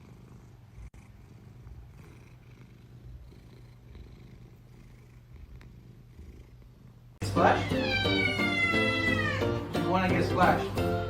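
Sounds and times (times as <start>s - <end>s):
cat purring: 0.0s - 7.2s.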